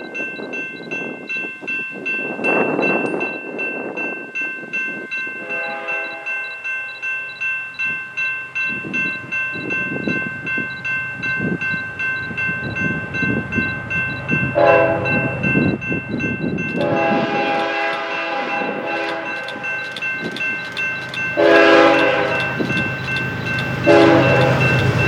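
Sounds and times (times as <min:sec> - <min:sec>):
railroad crossing bell ringing: 0:00.0 - 0:25.0
train rumbling: 0:05.3 - 0:25.0
train horn blast: 0:05.4 - 0:06.4, 0:14.6 - 0:15.4, 0:16.8 - 0:19.7, 0:21.4 - 0:22.8, 0:23.8 - 0:25.0.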